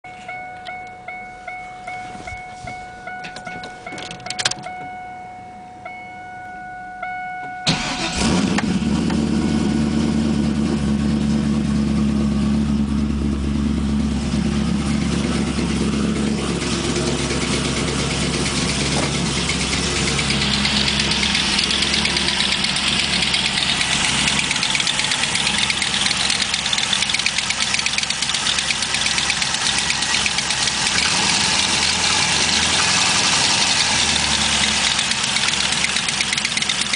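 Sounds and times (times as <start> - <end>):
engine cranking and idling: 7.6 - 36.9
exhaust leak ticking: 12.9 - 36.9.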